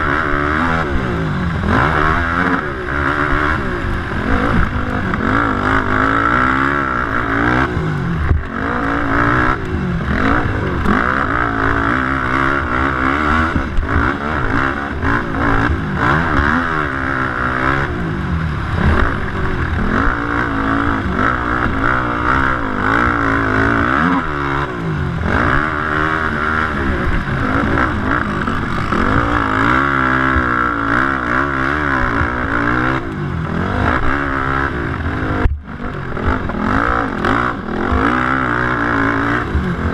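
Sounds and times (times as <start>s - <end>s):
quad engines revving: 0.0s - 39.9s.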